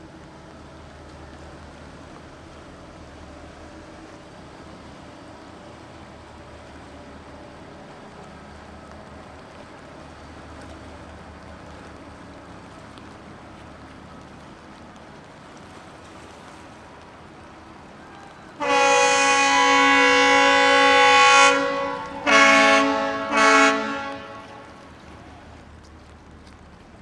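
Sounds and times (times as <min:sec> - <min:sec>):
second horn short blasts: 0:18.6 - 0:24.9
ship's horn long blast: 0:18.6 - 0:25.5.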